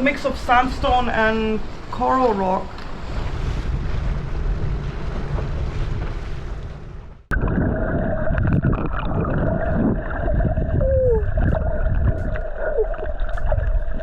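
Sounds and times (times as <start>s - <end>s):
underwater rumble of moving water: 0.0s - 14.0s.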